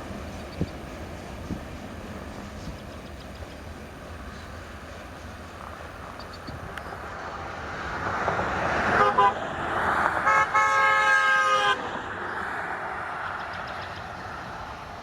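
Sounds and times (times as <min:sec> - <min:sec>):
vehicle horn: 0:08.9 - 0:09.4, 0:10.2 - 0:11.9.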